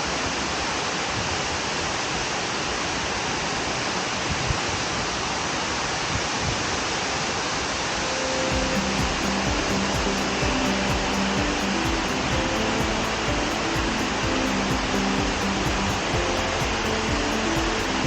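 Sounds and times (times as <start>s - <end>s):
waterfall rushing: 7.2s - 18.0s.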